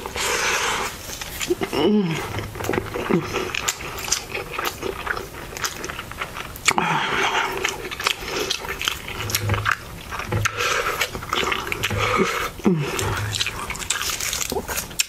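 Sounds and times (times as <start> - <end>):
wet chewing and mouth sounds: 0.0 - 15.0
person humming with enjoyment: 1.7 - 2.4, 11.9 - 13.5.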